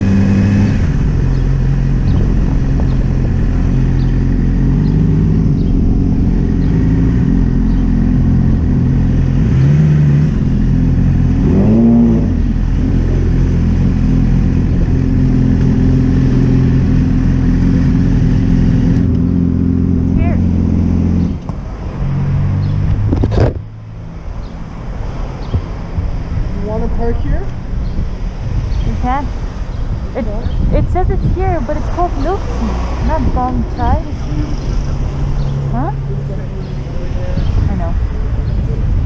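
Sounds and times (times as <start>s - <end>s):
motorcycle engine running: 0.0s - 21.5s
wind and road noise: 0.0s - 39.0s.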